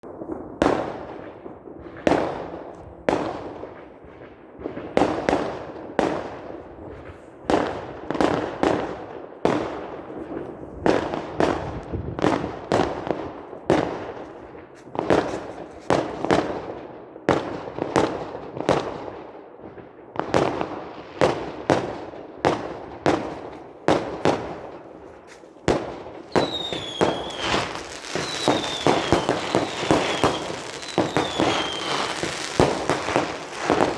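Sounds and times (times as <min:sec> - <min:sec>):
fireworks banging: 0:00.0 - 0:14.2, 0:21.2 - 0:33.9
fireworks crackling: 0:00.1 - 0:16.6, 0:20.3 - 0:33.9
whistling rockets: 0:26.3 - 0:33.9.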